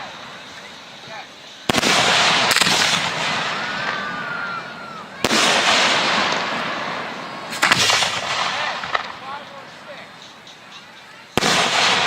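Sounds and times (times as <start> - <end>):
faint firework whistle: 0.0 - 12.0
fireworks bursting: 0.0 - 12.0
loud firework bang: 1.7 - 9.4, 11.4 - 12.0.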